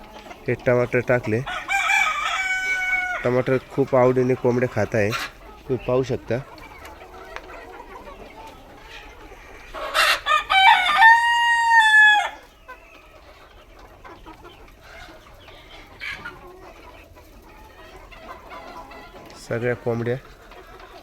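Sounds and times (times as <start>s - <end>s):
hens clucking softly: 0.0s - 21.0s
rooster crowing: 1.5s - 3.3s, 10.2s - 12.4s.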